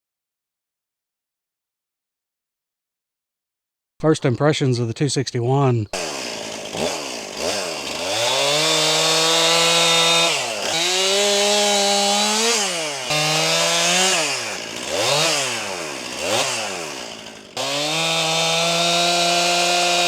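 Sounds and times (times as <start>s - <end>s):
chainsaw revving: 5.9s - 20.0s.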